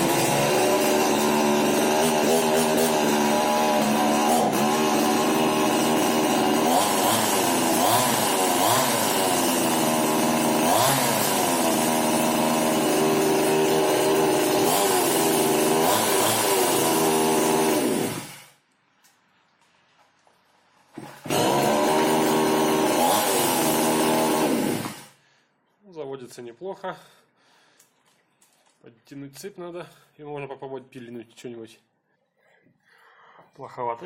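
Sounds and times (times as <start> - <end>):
chainsaw throttle blips: 0.0 - 18.4, 21.0 - 25.1.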